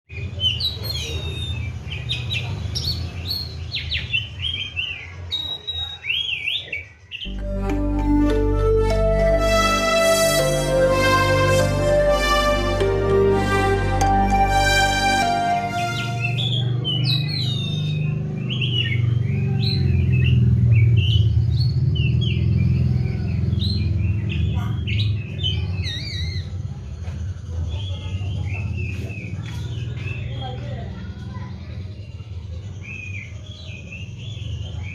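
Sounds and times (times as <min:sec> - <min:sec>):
magpie-robin singing: 0:16.3 - 0:20.4.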